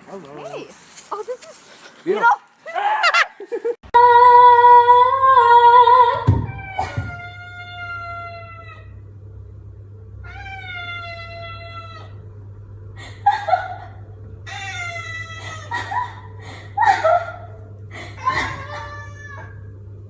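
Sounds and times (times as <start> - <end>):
cat meowing: 10.2 - 12.2, 18.3 - 19.6.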